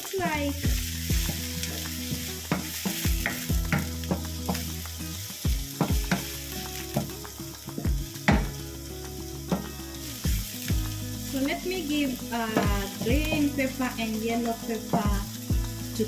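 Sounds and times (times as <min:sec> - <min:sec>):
vegetables sizzling in oil: 0:00.0 - 0:16.0
spoon knocking against pan: 0:07.8 - 0:08.6.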